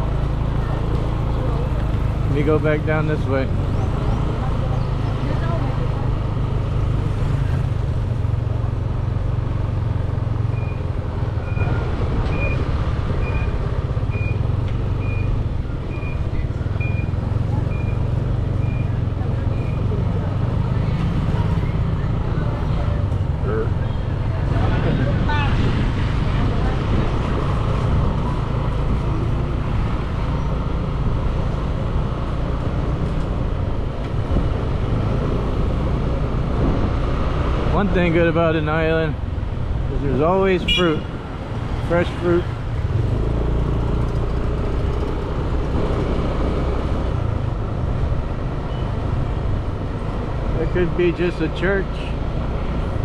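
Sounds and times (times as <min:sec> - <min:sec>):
road noise: 0:00.0 - 0:53.0
motorbike engine running: 0:42.8 - 0:46.5.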